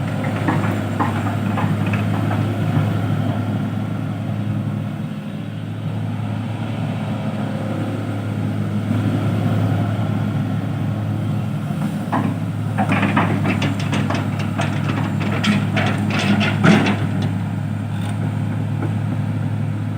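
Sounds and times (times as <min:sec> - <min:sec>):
short knocks: 0:12.1 - 0:17.4.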